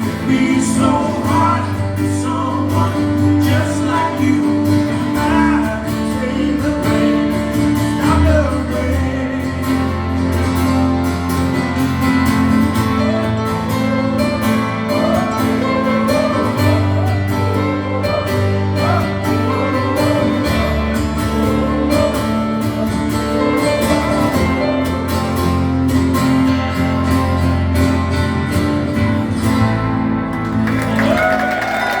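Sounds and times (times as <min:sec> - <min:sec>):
person singing: 0:00.0 - 0:10.6, 0:12.8 - 0:25.0
acoustic guitar chords: 0:00.0 - 0:32.0.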